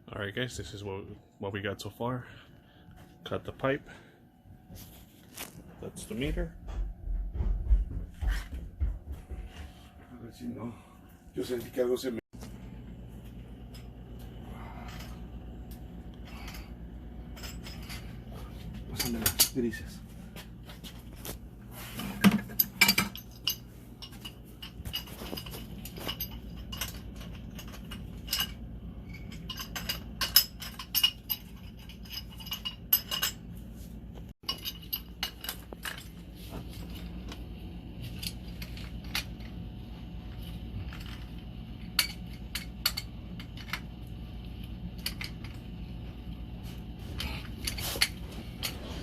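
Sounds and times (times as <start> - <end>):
low steady hum: 0.0 - 49.0
metal tools clinking and tapping: 16.2 - 20.0, 21.8 - 33.5, 34.4 - 37.4, 40.4 - 44.0, 45.0 - 45.6.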